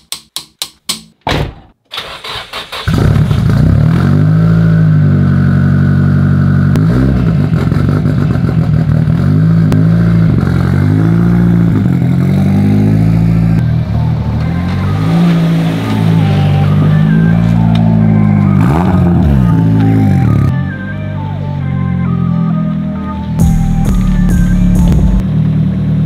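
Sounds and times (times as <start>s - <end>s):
car engine running with throttle blips: 2.9s - 20.6s.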